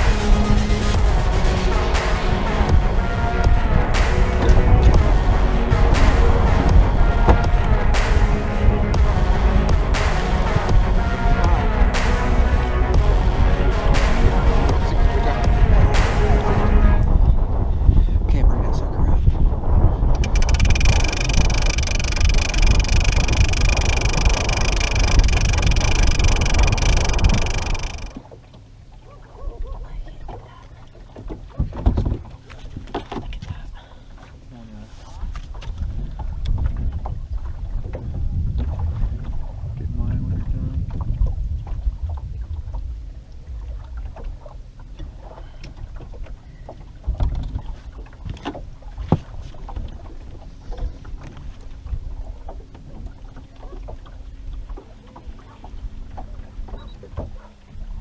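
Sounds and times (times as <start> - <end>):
boat motor whining: 0.0 - 17.0, 20.2 - 28.2
wind rumble on microphone: 0.0 - 28.2, 31.2 - 33.7, 34.4 - 58.0.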